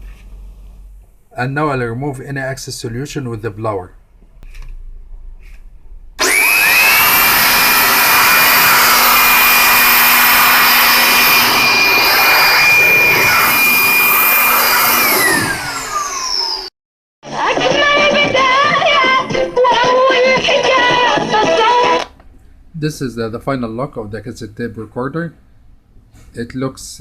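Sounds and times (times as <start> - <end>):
air blower motor whine: 6.2 - 16.7.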